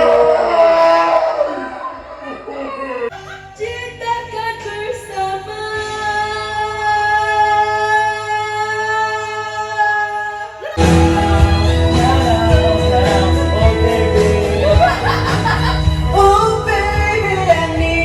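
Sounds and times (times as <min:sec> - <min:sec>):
person singing solo: 0:10.6 - 0:16.1.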